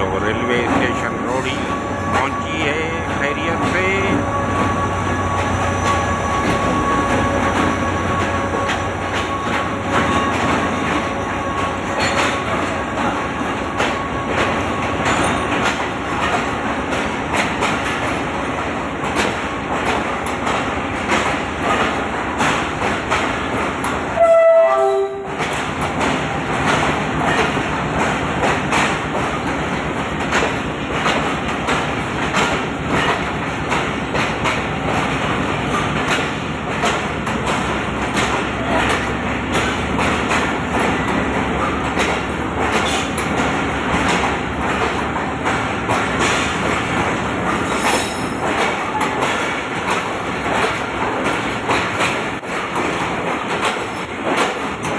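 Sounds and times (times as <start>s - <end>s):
train wheels clattering over rails: 0.0s - 54.9s
train horn blast: 24.2s - 25.4s.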